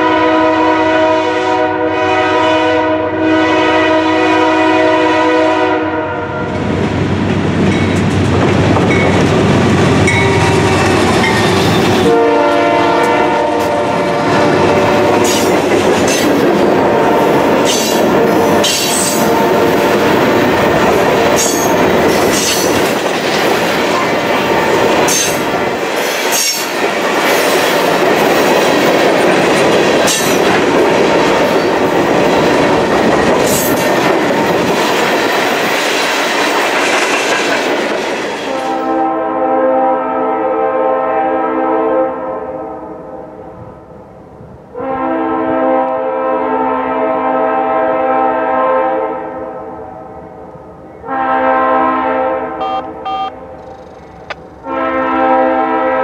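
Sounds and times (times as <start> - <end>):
train horn blasts: 0.0 - 6.7, 10.1 - 22.8, 38.4 - 43.4, 44.7 - 50.1, 51.0 - 53.6, 54.6 - 56.0.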